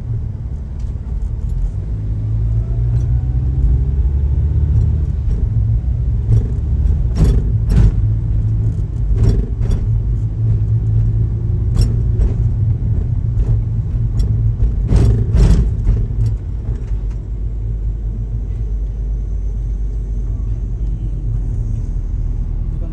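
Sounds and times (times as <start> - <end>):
low vehicle rumble: 0.0 - 22.9
sharp knocks and rattles: 2.8 - 17.4.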